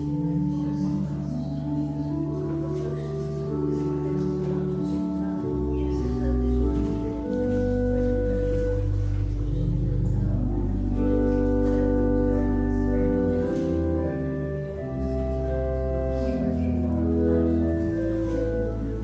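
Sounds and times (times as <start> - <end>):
church organ chords: 0.0 - 19.0.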